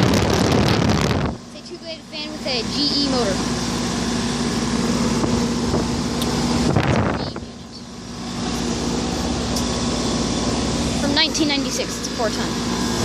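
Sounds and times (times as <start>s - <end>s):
compressor hum: 0.0s - 13.0s
condenser fan rushing: 0.0s - 13.0s.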